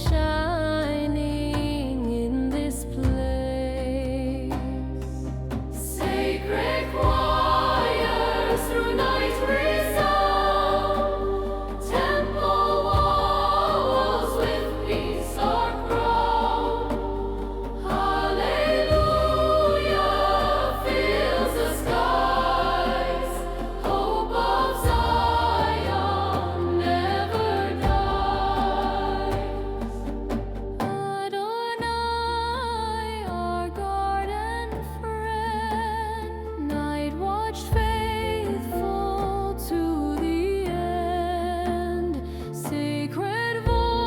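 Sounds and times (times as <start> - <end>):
sustained instrumental backing: 5.2 - 31.0
choir singing a hymn: 5.8 - 31.0.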